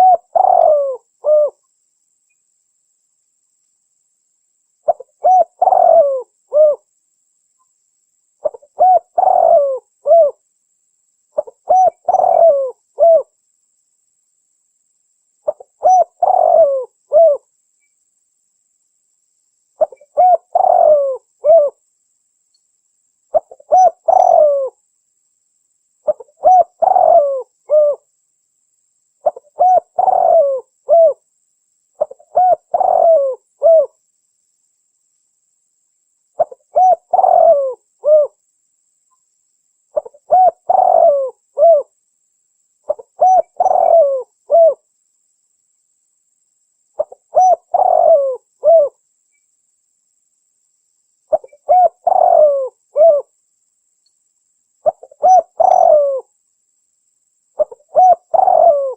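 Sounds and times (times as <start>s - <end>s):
dove cooing: 0.0s - 1.6s, 4.8s - 6.9s, 8.4s - 10.4s, 11.4s - 13.3s, 15.4s - 17.5s, 19.8s - 21.8s, 23.3s - 24.8s, 26.0s - 28.1s, 29.2s - 31.2s, 32.0s - 34.0s, 36.4s - 38.4s, 40.0s - 41.9s, 42.9s - 44.8s, 47.0s - 49.0s, 51.3s - 53.3s, 54.8s - 56.3s, 57.6s - 58.9s.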